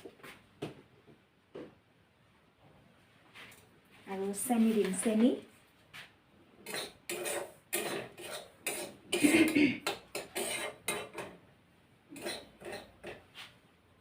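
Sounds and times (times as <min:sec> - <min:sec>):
utensil scraping a pan: 0:06.6 - 0:11.4, 0:12.1 - 0:13.6.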